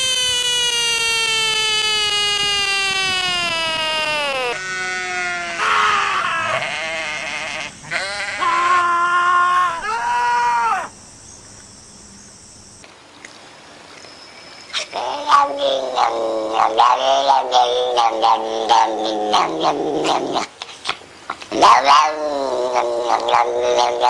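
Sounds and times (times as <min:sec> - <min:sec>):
cat yowling: 0:00.6 - 0:10.9
sheep bleating: 0:04.6 - 0:08.9.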